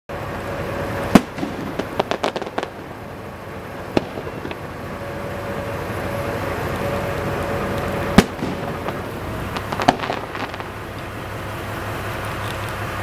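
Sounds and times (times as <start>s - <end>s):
steady background hiss: 0.1s - 13.0s
firework bangs: 0.9s - 11.7s
crackling firework pops: 1.2s - 3.0s, 3.9s - 4.8s, 8.2s - 11.1s.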